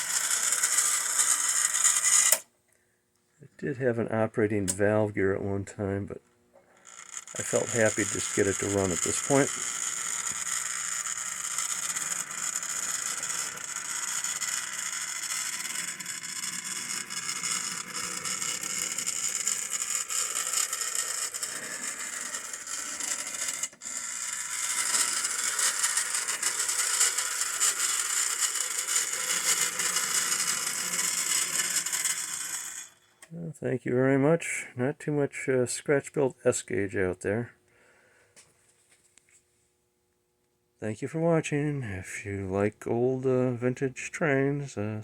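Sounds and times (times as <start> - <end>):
model train running on track: 0.0 - 2.4, 6.8 - 33.2.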